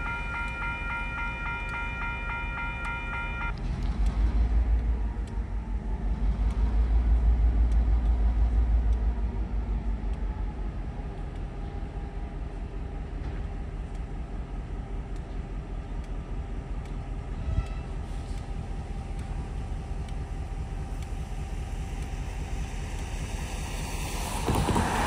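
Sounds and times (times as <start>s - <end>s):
level-crossing bell ringing: 0.0s - 3.5s
diesel locomotive deep rumble: 0.0s - 25.0s.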